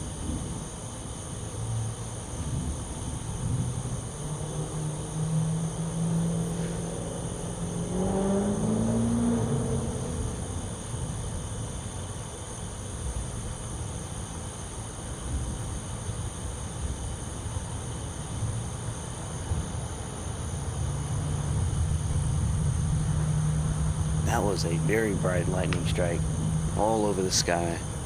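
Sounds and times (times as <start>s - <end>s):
low outdoor rumble: 0.0s - 7.9s, 20.8s - 28.0s
vehicle engine passing: 4.3s - 11.0s, 21.3s - 28.0s.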